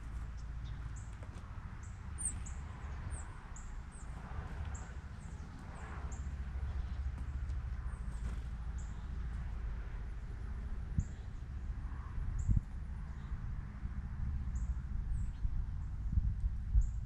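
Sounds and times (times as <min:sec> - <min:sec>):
steady low rumble: 0:00.0 - 0:17.0
small birds chirping: 0:00.1 - 0:09.2.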